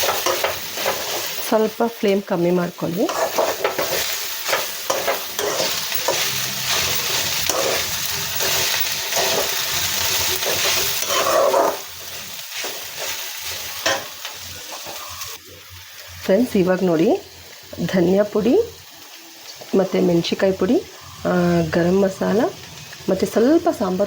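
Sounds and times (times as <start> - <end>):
spoon scraping a pan: 0.0 - 1.5, 3.0 - 15.3
spices sizzling in a pan: 0.0 - 24.0.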